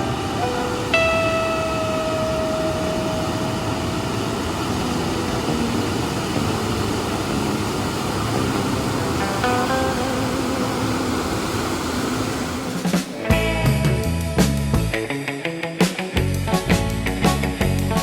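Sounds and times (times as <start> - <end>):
surf rock music: 0.0 - 3.6, 4.9 - 11.4, 12.7 - 18.0
guitar note ringing: 0.0 - 11.4, 13.1 - 16.6
steady rushing wash: 0.0 - 13.4.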